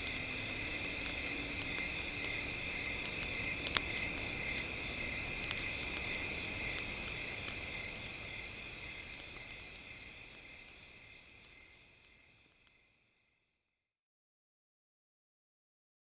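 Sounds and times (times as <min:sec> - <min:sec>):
campfire crackling: 0:00.0 - 0:12.9
crickets chirring: 0:00.0 - 0:13.6.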